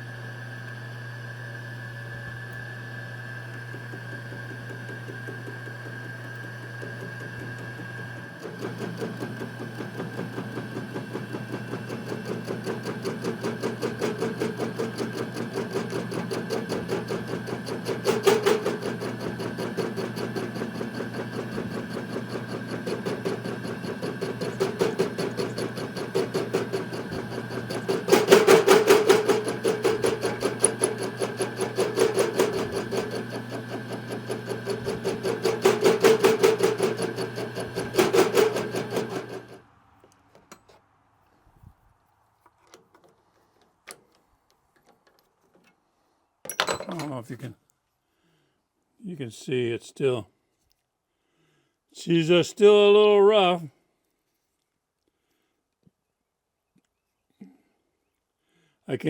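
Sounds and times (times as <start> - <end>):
motor hum: 0.0 - 39.7
lathe cutting tool ticking: 3.5 - 39.6.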